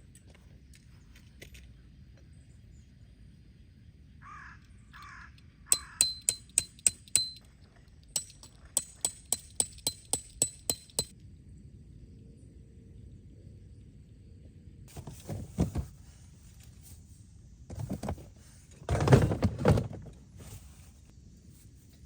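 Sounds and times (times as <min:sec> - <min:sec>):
crow cawing: 0:04.2 - 0:06.1
hammer striking metal stakes: 0:05.7 - 0:07.5, 0:08.2 - 0:11.1.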